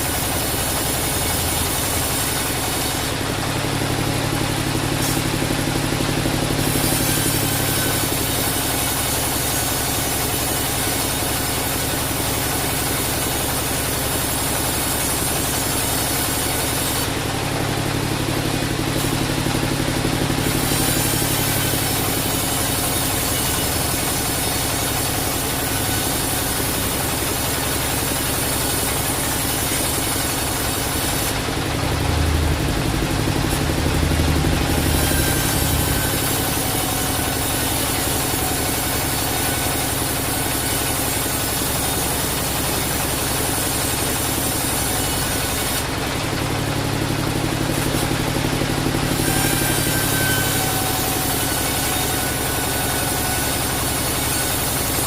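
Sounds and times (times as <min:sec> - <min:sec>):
bandsaw sawmill running: 0:00.0 - 0:55.0
low hum: 0:31.4 - 0:37.4.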